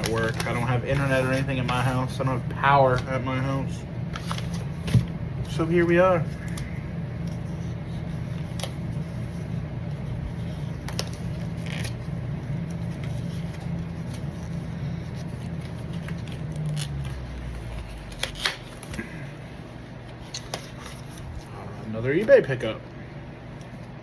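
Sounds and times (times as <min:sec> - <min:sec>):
packaging tearing and rustling: 0:00.0 - 0:07.5, 0:09.8 - 0:21.5
low hum: 0:02.0 - 0:22.0.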